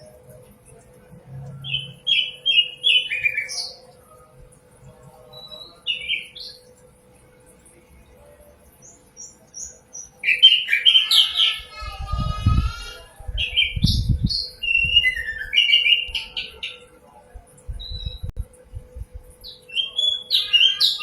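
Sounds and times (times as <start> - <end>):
faint steady hum: 0.0 - 21.0
nightingale singing: 13.4 - 16.9, 19.4 - 21.0
low rumble: 17.7 - 19.4.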